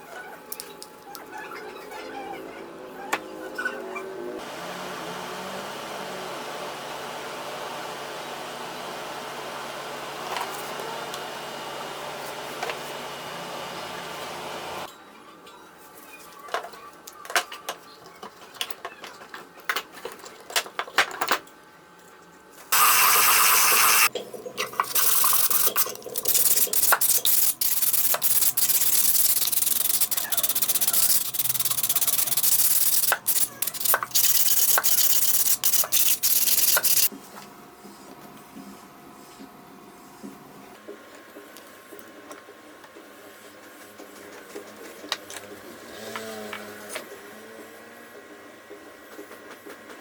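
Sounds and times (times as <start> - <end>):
power tool cutting wood: 22.7 - 24.1.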